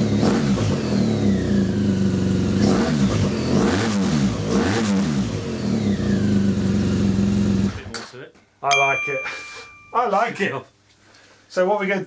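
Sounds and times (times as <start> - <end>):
motorcycle engine idling and revving: 0.0 - 8.0.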